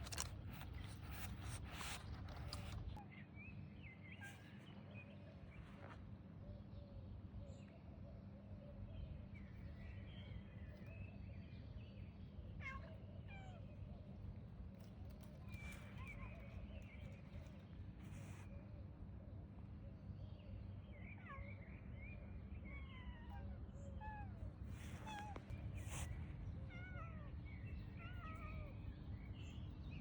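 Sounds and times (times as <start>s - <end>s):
rustling: 0.0s - 3.0s
cat meowing faintly: 22.7s - 27.4s.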